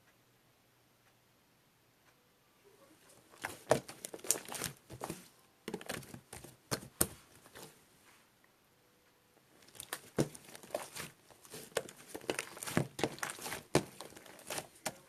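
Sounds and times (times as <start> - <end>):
crinkling handling sounds: 3.0 - 8.2, 9.4 - 15.0.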